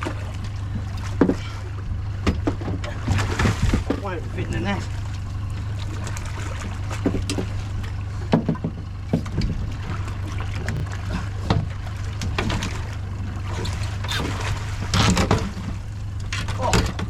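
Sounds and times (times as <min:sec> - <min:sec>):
boat engine humming: 0:00.0 - 0:17.0
knocks and bumps on board: 0:08.3 - 0:09.6.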